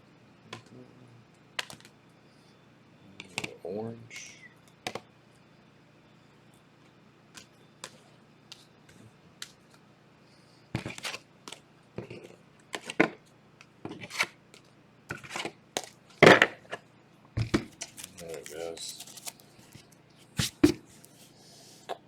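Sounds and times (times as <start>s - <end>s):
trading cards clacking and rustling: 17.4s - 21.0s.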